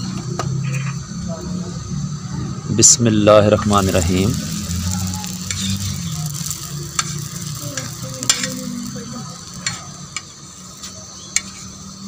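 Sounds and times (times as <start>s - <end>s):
bread sizzling in pan: 3.5s - 12.0s.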